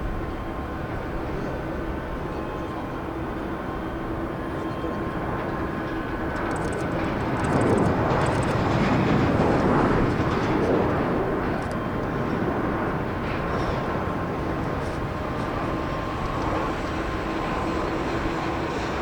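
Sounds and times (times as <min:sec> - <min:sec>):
jet airliner landing: 0:00.0 - 0:19.0.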